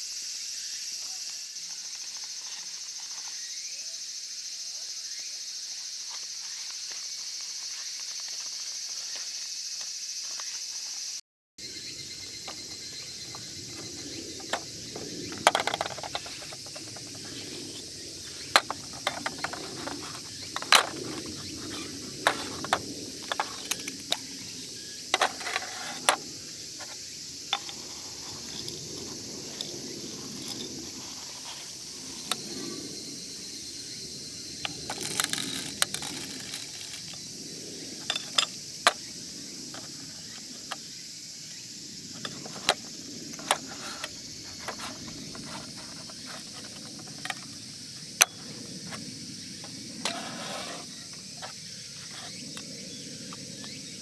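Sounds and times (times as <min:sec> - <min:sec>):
insects chirring: 0:00.0 - 0:54.0
gear being handled clicks: 0:15.3 - 0:24.3, 0:25.2 - 0:32.4, 0:34.7 - 0:37.2.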